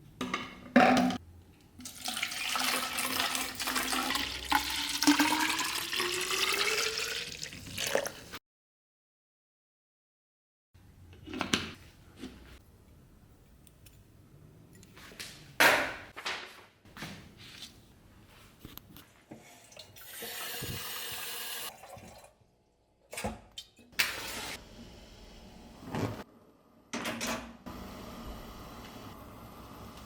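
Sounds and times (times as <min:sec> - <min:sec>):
objects knocking and clattering: 0:00.2 - 0:01.2
water running: 0:01.8 - 0:08.4, 0:19.7 - 0:22.4.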